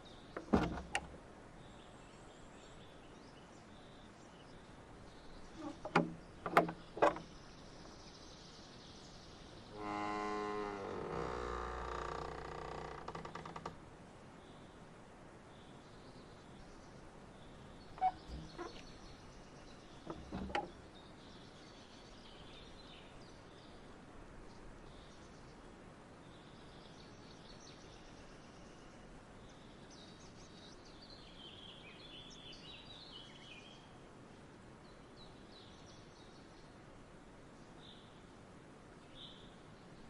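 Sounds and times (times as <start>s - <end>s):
small birds chirping: 0.0s - 9.8s, 15.5s - 23.8s
steady outdoor hiss: 0.0s - 40.0s.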